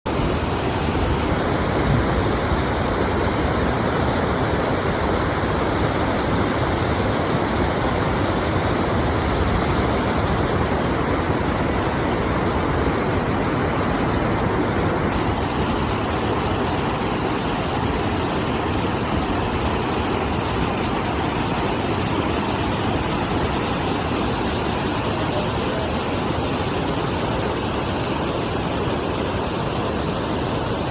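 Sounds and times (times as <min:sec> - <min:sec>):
water rushing at a dam: 0:00.1 - 0:30.9.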